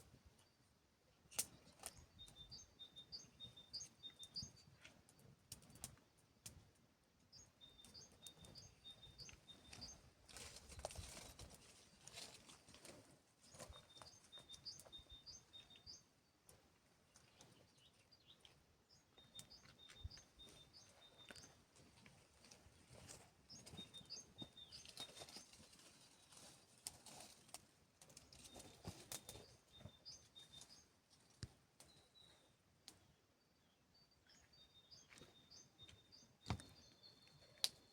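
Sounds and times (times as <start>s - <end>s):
faint bird chirping: 1.4s - 6.0s, 7.3s - 37.9s.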